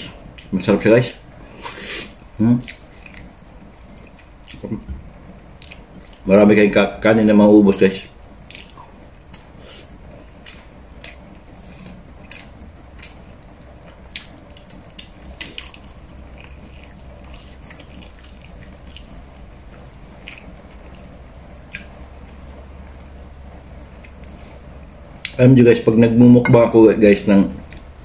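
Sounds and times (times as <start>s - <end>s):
low steady hum: 0.0s - 28.0s
wet chewing: 2.6s - 4.8s, 5.5s - 6.2s, 8.4s - 9.5s, 13.8s - 23.1s
lip-smacking clicks: 14.1s - 15.9s.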